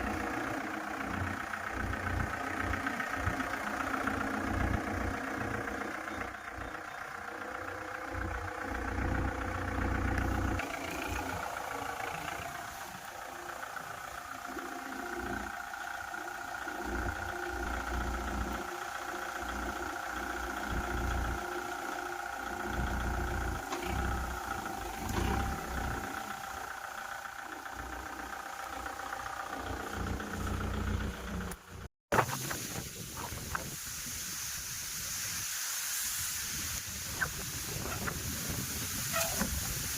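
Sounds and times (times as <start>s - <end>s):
tractor diesel engine idling: 0.0s - 31.9s, 36.1s - 39.9s
heavy low rumble: 22.5s - 27.0s.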